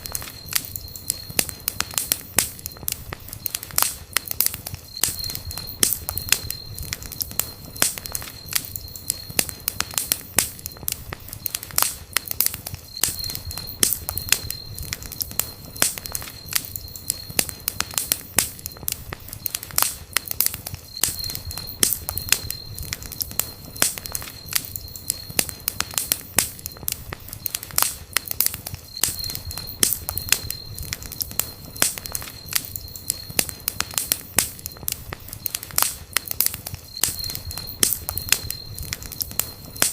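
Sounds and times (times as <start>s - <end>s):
campfire crackling and popping: 0.0s - 39.9s
thin high whistle: 4.5s - 11.7s, 12.8s - 18.8s, 36.8s - 39.9s.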